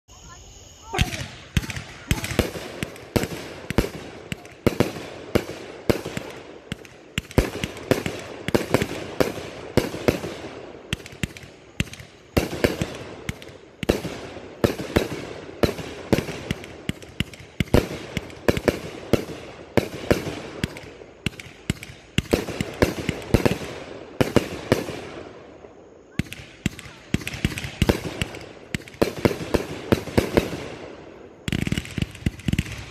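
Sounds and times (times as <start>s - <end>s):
firework bursts overhead: 0.2s - 32.9s.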